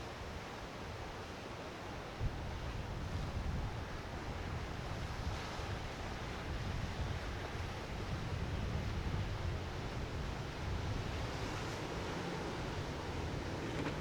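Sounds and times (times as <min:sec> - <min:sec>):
wind buffeting microphone: 0:02.3 - 0:14.0
surf washing: 0:03.3 - 0:14.0.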